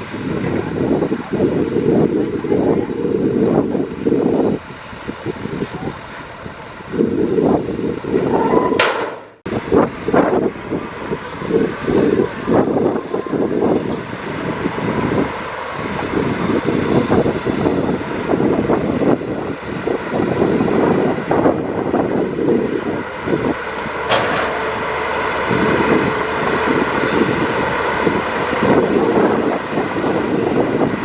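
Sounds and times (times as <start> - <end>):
diesel engine clattering: 0.0 - 31.0.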